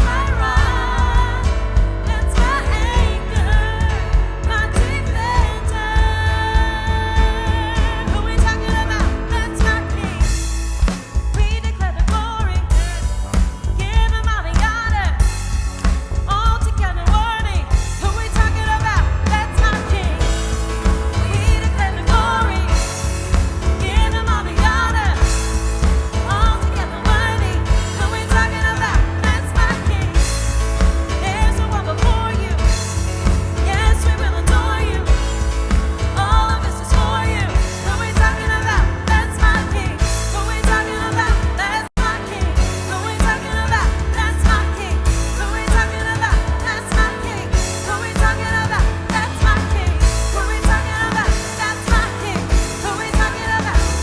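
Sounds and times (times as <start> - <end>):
lead and backing vocals: 0.0 - 54.0
worship band playing: 0.0 - 54.0.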